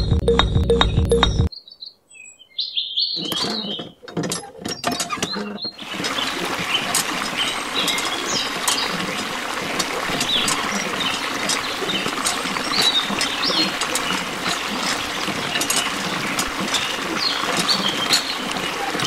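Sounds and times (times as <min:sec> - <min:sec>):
hand pump handle clicking: 0:03.2 - 0:05.7, 0:06.9 - 0:19.0
water stream into trough: 0:03.5 - 0:19.0.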